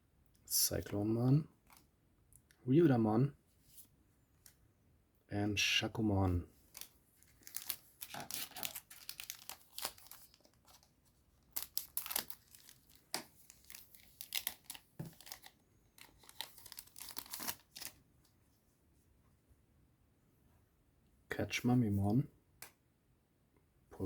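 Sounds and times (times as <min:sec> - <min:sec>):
wrapper tearing and crinkling: 0:06.7 - 0:18.0.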